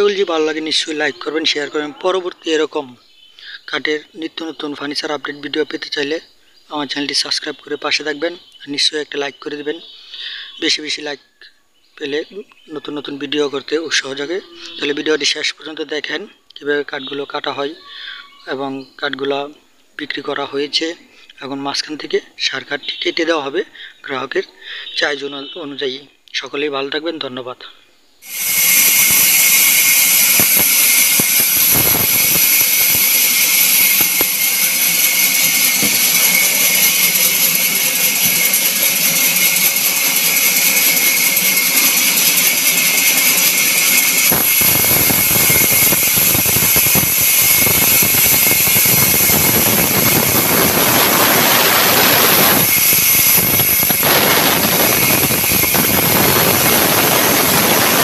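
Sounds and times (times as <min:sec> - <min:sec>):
sawmill saw cutting a log: 0:28.2 - 0:58.0.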